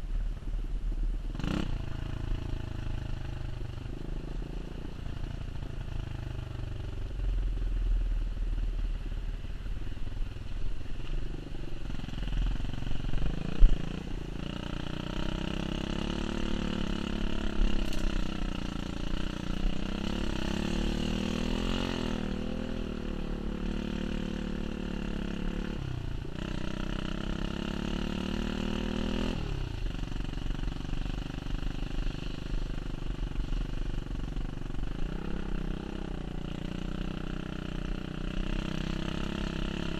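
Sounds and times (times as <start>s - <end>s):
pit bike engine revving: 13.2s - 29.6s.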